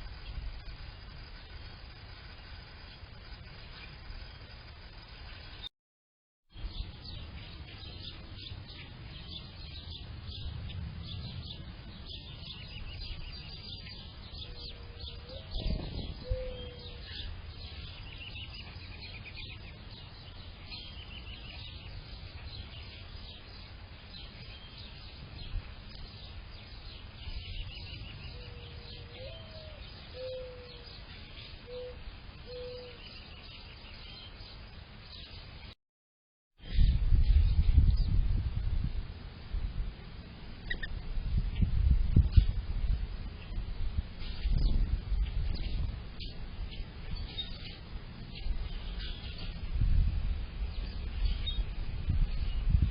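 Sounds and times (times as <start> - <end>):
songbirds chirping and trilling: 0.0 - 5.7, 6.5 - 35.8, 39.2 - 52.9
dove cooing: 14.5 - 17.0, 28.4 - 30.8.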